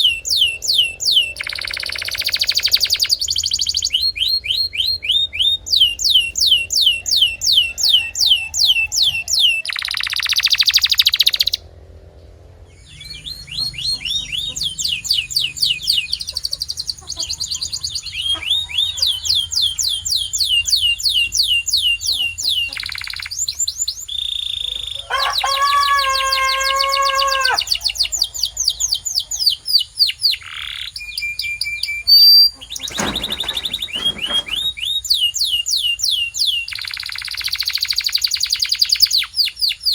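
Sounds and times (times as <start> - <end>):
canary singing trills: 0.0 - 11.7, 12.7 - 39.9.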